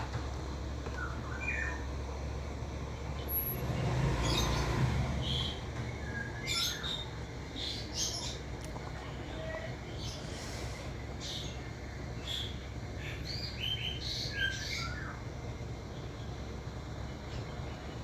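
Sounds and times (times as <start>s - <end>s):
high bird chirps: 0.8s - 2.0s, 4.2s - 8.4s, 12.2s - 15.3s.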